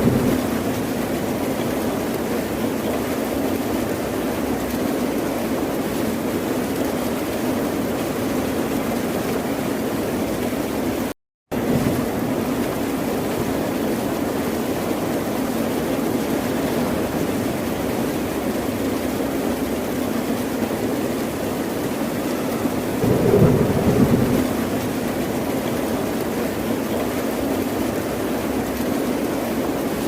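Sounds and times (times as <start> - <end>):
ocean waves washing: 0.0 - 2.2, 19.0 - 29.7.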